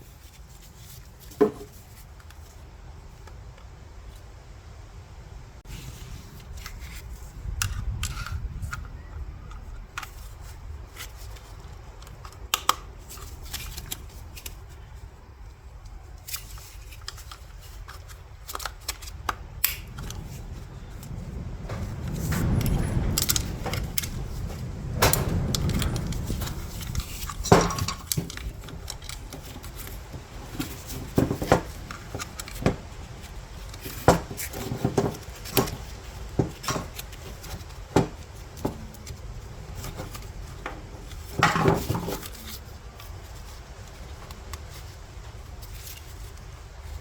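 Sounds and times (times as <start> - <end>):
tools clicking and clinking: 16.4 - 20.4, 21.0 - 32.8
parts rattling: 16.4 - 47.0
low handling rumble: 19.1 - 45.6.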